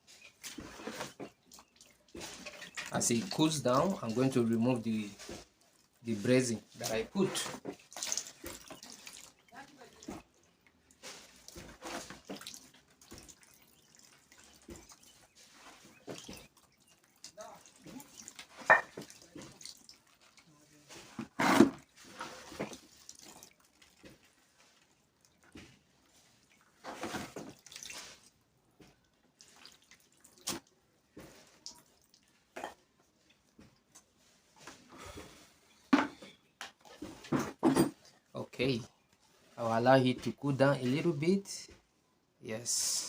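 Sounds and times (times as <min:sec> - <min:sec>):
water dripping and splashing: 0:00.1 - 0:21.1, 0:21.8 - 0:35.4.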